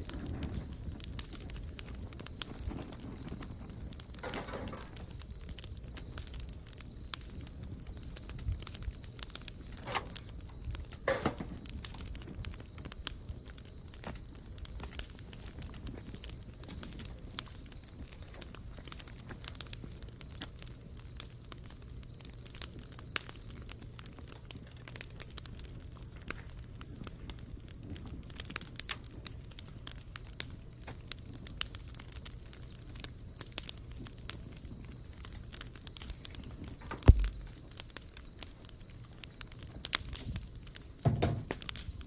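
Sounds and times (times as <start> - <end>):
bonfire crackling: 0.0 - 42.0
sharp fire pops: 0.0 - 42.0
loud thump: 37.0 - 37.4.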